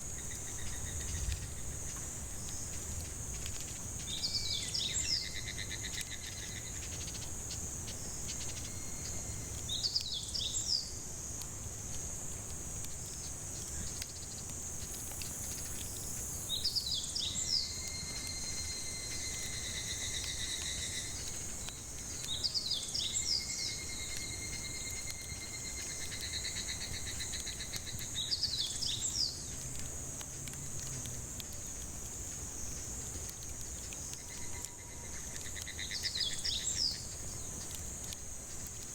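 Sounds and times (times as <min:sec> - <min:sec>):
cicadas chorus: 0:00.0 - 0:38.9.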